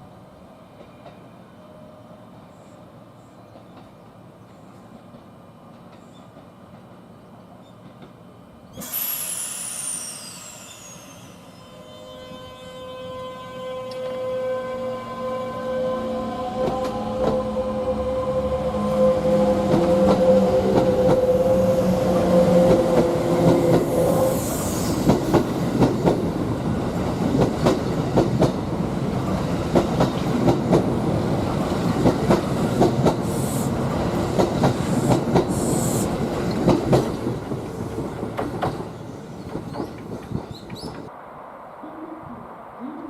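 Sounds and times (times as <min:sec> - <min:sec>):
train wheels clacking over rail joints: 0:36.4 - 0:41.1.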